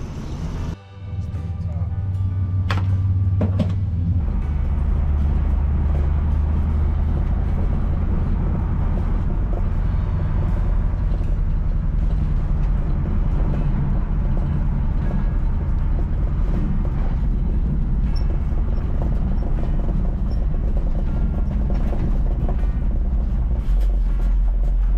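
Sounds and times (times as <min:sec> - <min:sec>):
heavy vehicle engine running: 0:00.0 - 0:24.9.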